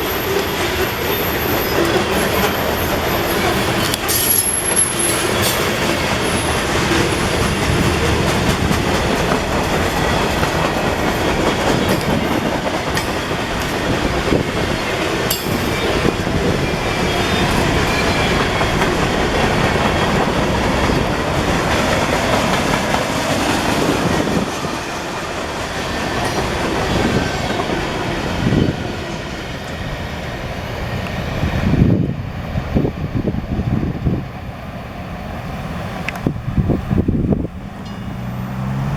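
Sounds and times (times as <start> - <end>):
high wheel squeal: 0.0 - 8.7, 9.4 - 19.0
freight train wheels rumbling: 0.0 - 38.9.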